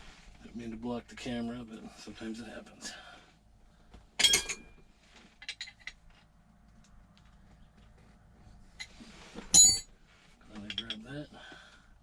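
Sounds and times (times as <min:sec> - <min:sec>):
metal tool clanking: 0:04.2 - 0:04.8, 0:09.6 - 0:09.9, 0:10.6 - 0:11.1.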